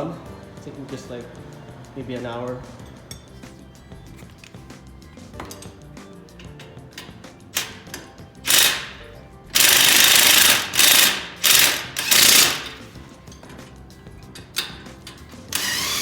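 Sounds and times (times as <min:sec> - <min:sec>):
background music: 0:00.0 - 0:16.0
impact wrench rattling: 0:06.4 - 0:16.0.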